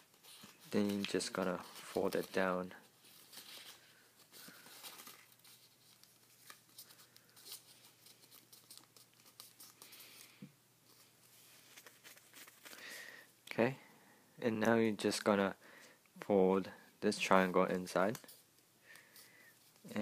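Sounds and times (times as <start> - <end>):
paper being folded: 0.0 - 10.3, 10.9 - 12.9.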